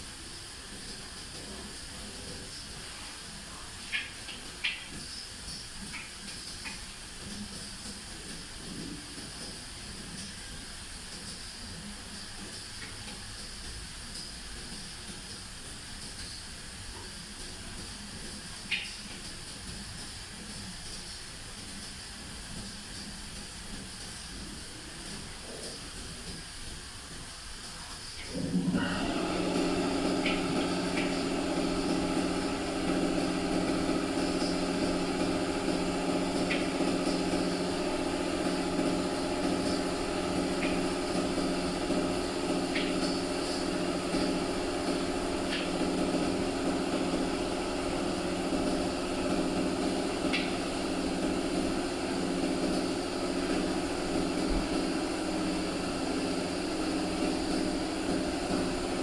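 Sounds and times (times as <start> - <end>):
motor humming: 28.2 - 59.0.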